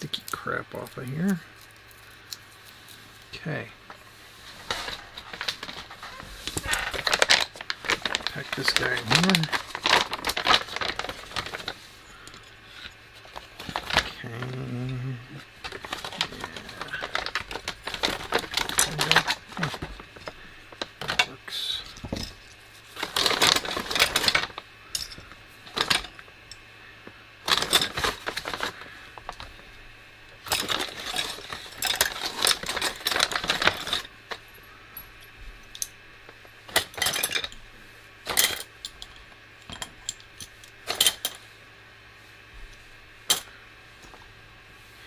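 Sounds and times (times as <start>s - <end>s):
small screws clinking and rattling: 15.6s - 20.4s, 21.0s - 26.6s, 27.5s - 29.5s, 30.4s - 36.0s, 36.7s - 37.6s.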